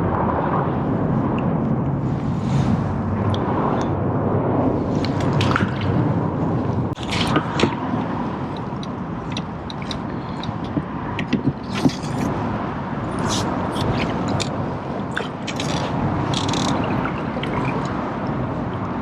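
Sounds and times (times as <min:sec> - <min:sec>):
low rushing noise: 0:00.0 - 0:19.0
small water splashes and drips: 0:05.0 - 0:06.0, 0:07.0 - 0:12.3, 0:13.1 - 0:19.0.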